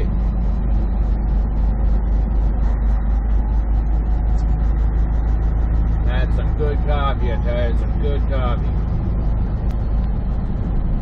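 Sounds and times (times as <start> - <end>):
truck engine drone inside cab: 0.0 - 11.0
fast faint high ticks: 9.3 - 10.3.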